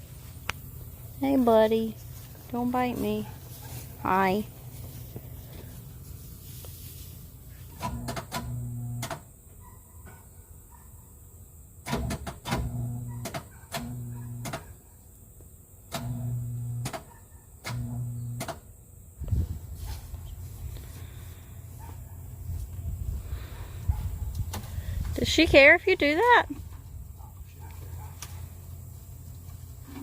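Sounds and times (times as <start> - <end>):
short electric hums with clicks: 7.7 - 9.3, 11.8 - 14.7, 15.8 - 19.4.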